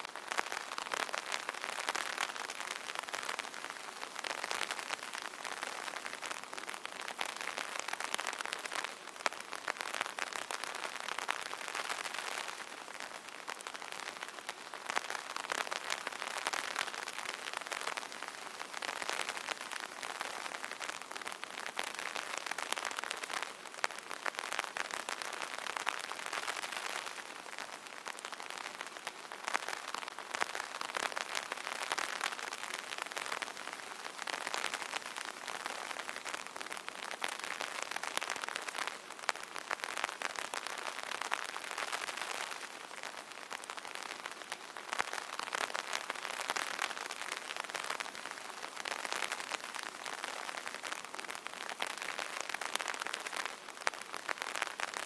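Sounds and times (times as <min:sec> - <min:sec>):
rain pattering on umbrella: 0:00.0 - 0:55.0.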